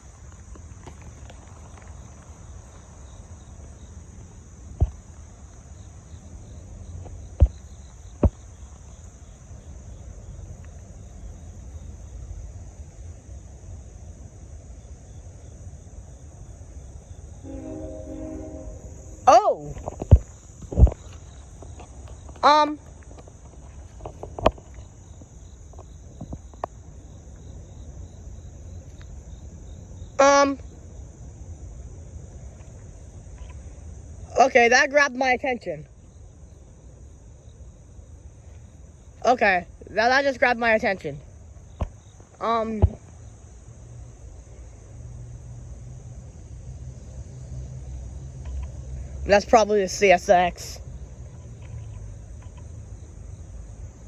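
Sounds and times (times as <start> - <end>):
insect chorus: 0.0 - 54.0
distant freight train rumble: 16.3 - 22.8
short pitched call: 17.5 - 19.4.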